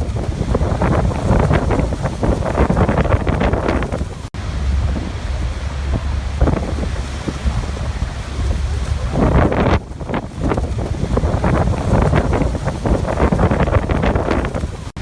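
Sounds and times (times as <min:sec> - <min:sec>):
waterfall rushing: 0:00.0 - 0:09.7
wind buffeting microphone: 0:00.0 - 0:15.0.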